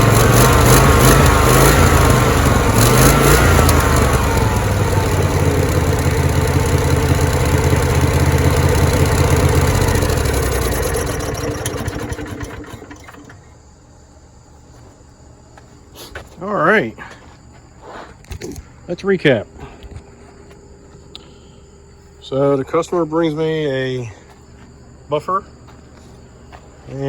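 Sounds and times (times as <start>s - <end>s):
floor buffer engine running: 0.0s - 13.5s.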